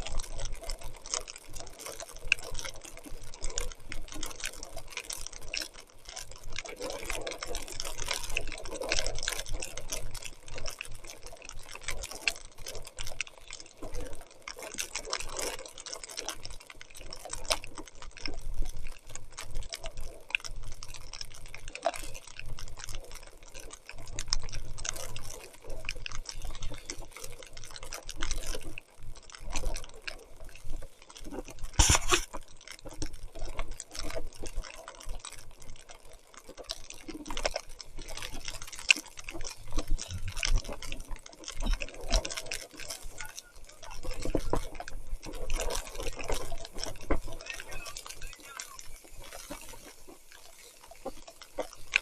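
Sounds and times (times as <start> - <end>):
small irregular clicks and knocks: 0.0 - 52.0
bike tyres splashing in mud: 31.0 - 52.0
heavy rain: 39.5 - 52.0.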